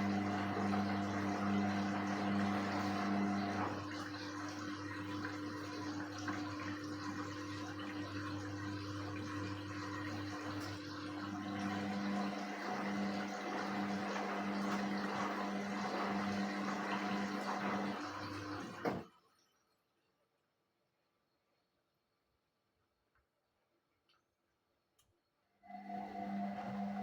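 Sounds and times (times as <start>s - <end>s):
water rushing in washing machine: 0.0s - 19.6s, 25.7s - 27.0s.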